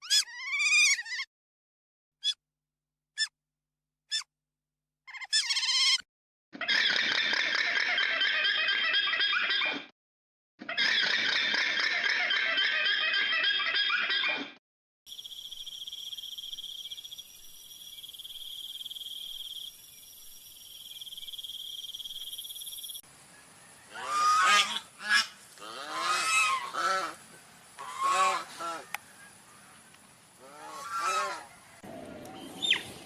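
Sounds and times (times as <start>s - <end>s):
geese honking: 23.9s - 29.8s, 30.4s - 31.9s.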